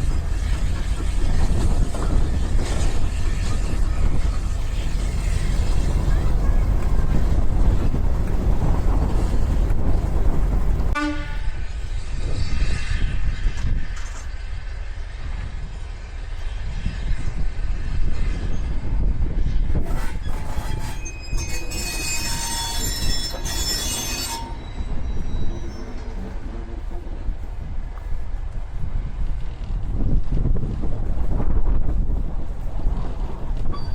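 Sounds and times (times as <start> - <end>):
train rumbling past: 0.0 - 33.9
train horn: 10.9 - 11.8
high squeal with hiss: 20.2 - 26.2.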